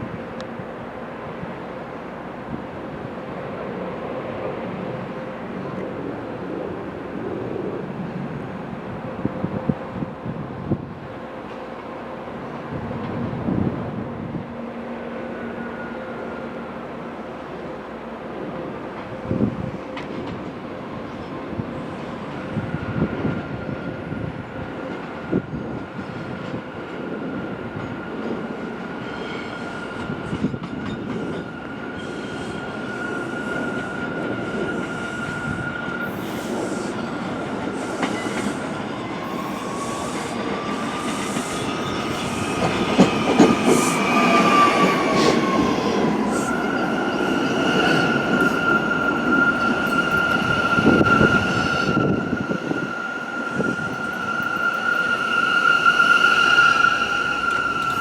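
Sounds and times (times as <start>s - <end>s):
subway train moving on tracks: 0.0s - 58.0s
high wheel squeal: 31.2s - 58.0s.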